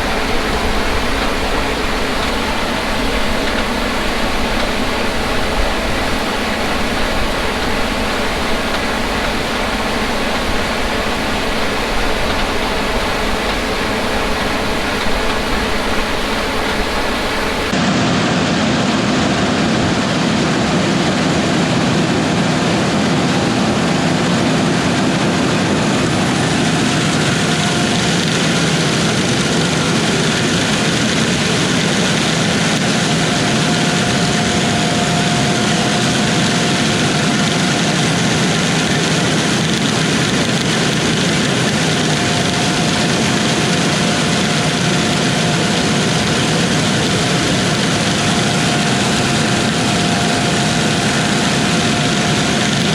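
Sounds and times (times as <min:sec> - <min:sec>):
faint high whine: 0:00.0 - 0:17.8, 0:40.4 - 0:52.9
combine harvester running: 0:00.0 - 0:52.9.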